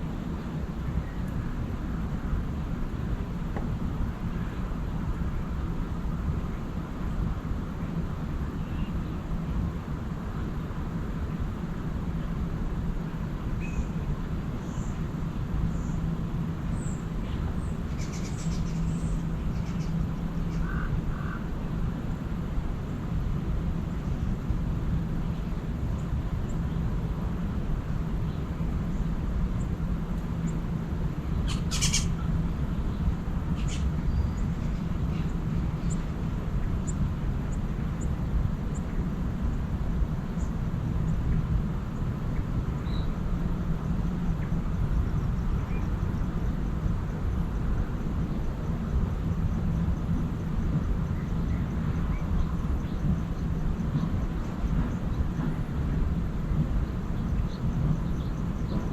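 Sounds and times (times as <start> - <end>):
low background rumble: 0.0 - 58.9
wild birds calling: 16.8 - 21.5, 31.4 - 32.3, 33.5 - 36.1.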